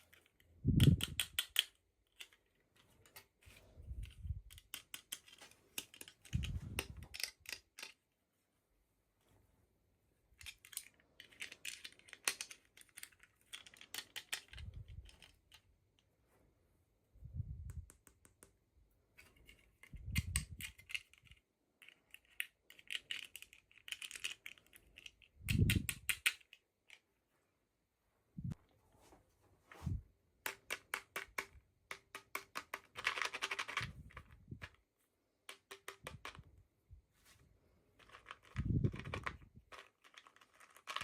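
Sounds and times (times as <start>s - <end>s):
packaging clicking and crinkling: 32.6s - 34.8s, 38.0s - 41.0s.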